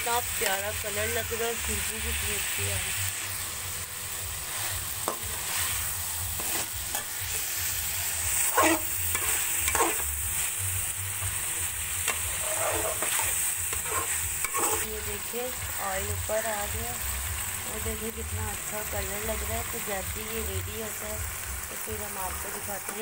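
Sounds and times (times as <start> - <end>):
food sizzling in oil: 0.0 - 23.0
spoon scraping a pan: 4.4 - 7.5, 8.4 - 10.1, 12.0 - 14.9.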